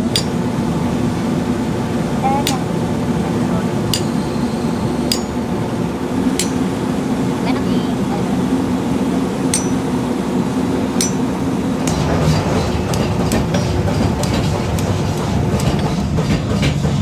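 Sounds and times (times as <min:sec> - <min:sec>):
ringing metal clinks: 0:00.0 - 0:00.4, 0:02.4 - 0:02.8, 0:03.9 - 0:05.5, 0:06.4 - 0:06.8, 0:09.5 - 0:10.0, 0:11.0 - 0:11.4
light metal taps: 0:05.1 - 0:05.3, 0:06.4 - 0:06.7, 0:09.5 - 0:09.9, 0:11.0 - 0:11.3.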